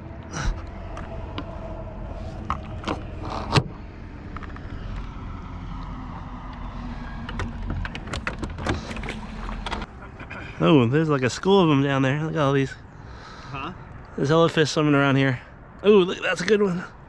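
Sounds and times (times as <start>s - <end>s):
boat motor rumbling: 0.0s - 13.5s.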